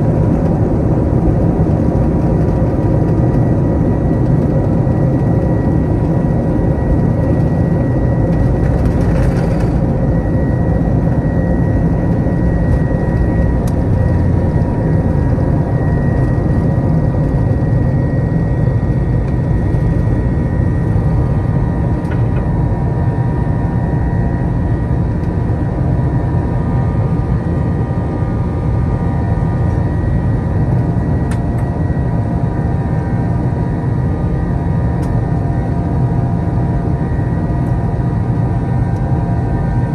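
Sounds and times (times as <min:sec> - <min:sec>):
jet engines at takeoff thrust: 0:00.0 - 0:39.9.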